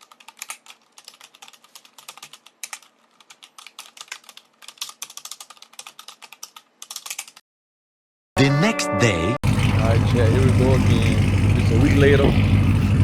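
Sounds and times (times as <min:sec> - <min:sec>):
rapid keyboard typing: 0:00.0 - 0:07.4.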